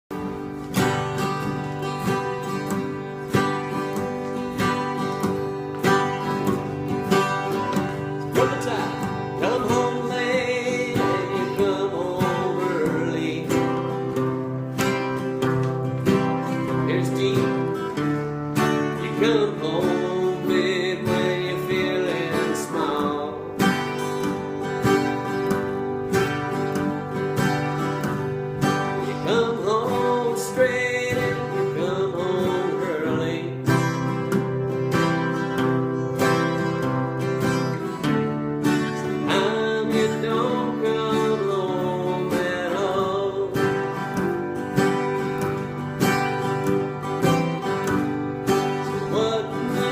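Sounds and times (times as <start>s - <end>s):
acoustic guitar strummed chords: 0.0s - 49.9s
bending guitar melody: 0.0s - 49.9s.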